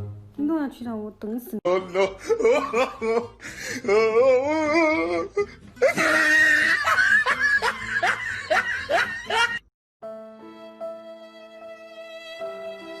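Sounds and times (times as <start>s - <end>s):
person laughing hard: 1.7s - 9.6s
soft music with held notes: 10.0s - 13.0s.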